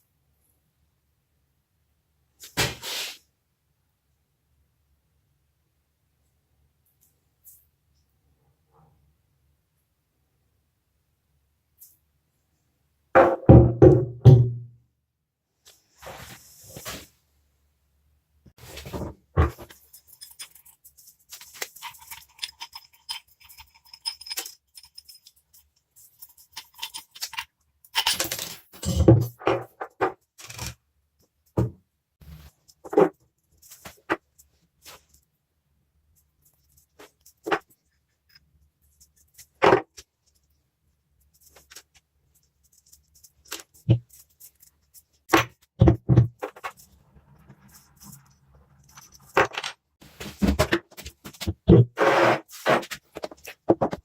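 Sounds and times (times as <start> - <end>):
knocking and scraping: 18.6 - 27.4, 42.7 - 54.0
metal parts clicking and clinking: 19.5 - 29.3, 30.4 - 30.8.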